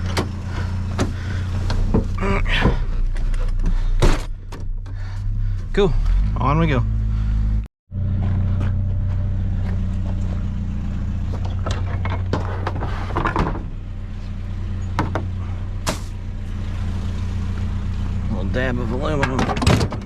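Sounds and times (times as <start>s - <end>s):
vehicle engine droning: 0.0s - 20.0s
knocks and rattles: 11.3s - 13.8s, 14.9s - 15.3s, 19.1s - 20.0s.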